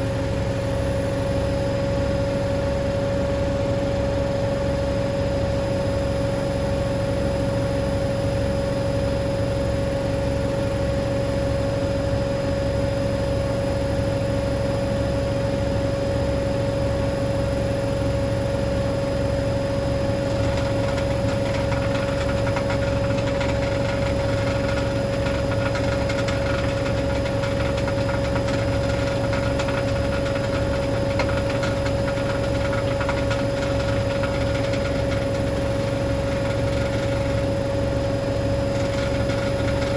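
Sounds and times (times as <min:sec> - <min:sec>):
washing machine spinning: 0:00.0 - 0:09.2, 0:09.8 - 0:39.9
fine rattling hiss: 0:20.3 - 0:37.6, 0:38.6 - 0:39.9.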